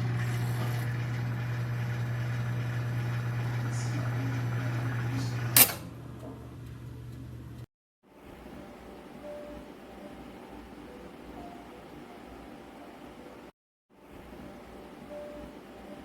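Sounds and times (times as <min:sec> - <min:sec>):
microwave oven humming: 0:00.0 - 0:13.5
microwave sharp click: 0:05.4 - 0:06.0.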